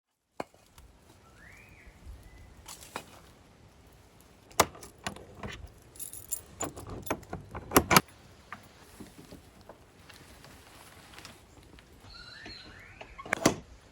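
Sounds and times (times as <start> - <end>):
metal keys jangling: 4.6 - 8.0
sharp clicks and knocks: 6.6 - 8.6.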